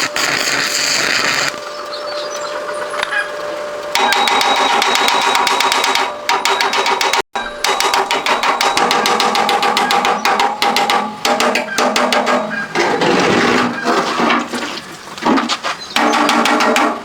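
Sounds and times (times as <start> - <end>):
steady ringing tone: 1.9 - 11.5
rapid hammering: 4.0 - 12.8, 16.0 - 17.0.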